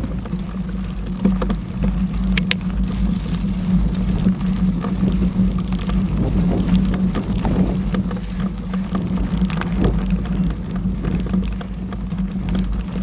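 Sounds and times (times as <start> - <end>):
bike rattling clicks: 0.0 - 3.3
bike tyres rumbling on trail: 0.0 - 13.0.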